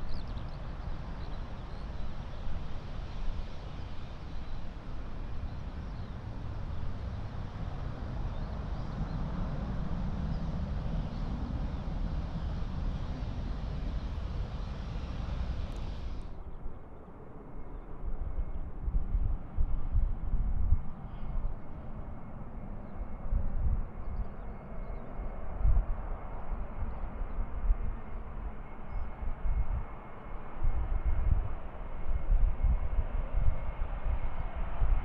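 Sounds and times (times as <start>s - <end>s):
wind buffeting microphone: 0.0s - 16.6s
jet airliner engine rumbling: 0.0s - 35.0s.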